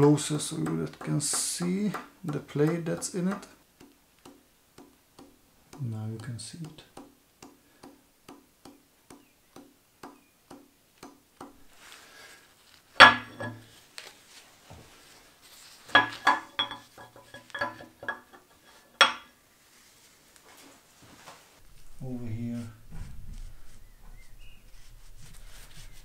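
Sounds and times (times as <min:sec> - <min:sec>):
slow even ticks: 0:00.4 - 0:11.6
metal parts clattering: 0:13.0 - 0:13.7, 0:15.9 - 0:19.2
metal parts clinking and clanking: 0:13.0 - 0:13.7, 0:15.9 - 0:19.3.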